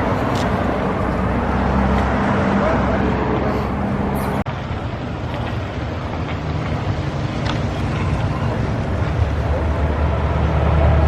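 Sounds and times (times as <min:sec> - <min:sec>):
vehicle road and engine rumble: 0:00.0 - 0:11.0.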